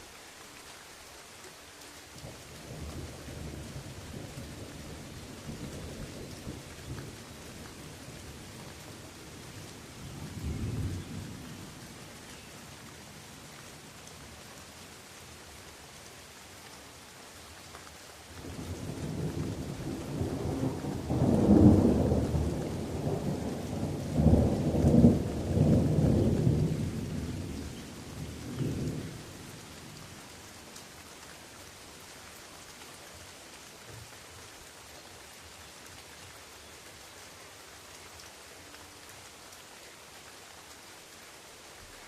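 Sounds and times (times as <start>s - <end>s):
rain falling on leaves: 0.0s - 42.0s
thunder rumbling: 18.5s - 29.2s.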